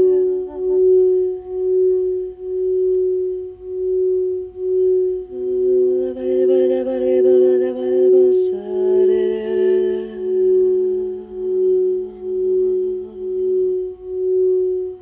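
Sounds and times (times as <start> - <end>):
lower wavering tone: 0.0 - 15.0
singing bowl ringing: 0.0 - 15.0.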